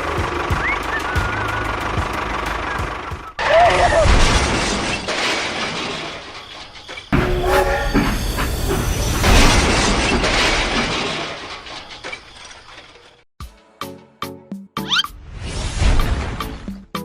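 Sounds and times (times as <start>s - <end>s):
train rumbling: 0.0s - 13.2s
train horn: 7.2s - 10.6s.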